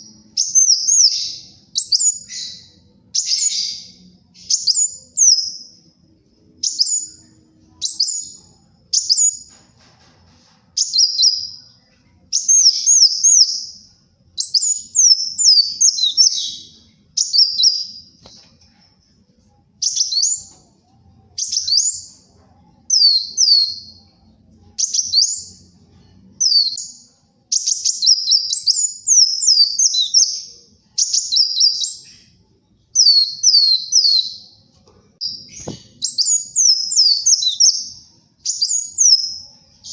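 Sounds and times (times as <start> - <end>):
sunbird chirping: 0.0 - 9.5, 10.8 - 18.8, 26.4 - 34.6, 35.2 - 39.9.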